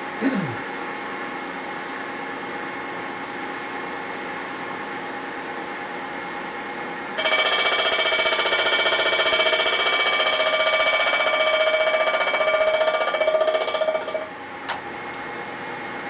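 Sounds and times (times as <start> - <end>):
cutter chattering on metal: 7.2 - 14.3.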